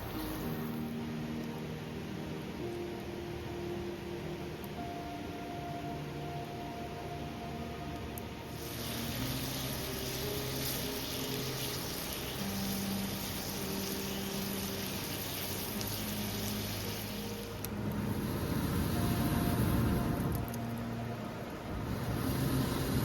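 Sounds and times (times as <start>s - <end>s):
low held tones: 0.0s - 23.0s
river flowing over stones: 0.0s - 23.0s
low rumble: 15.8s - 23.0s.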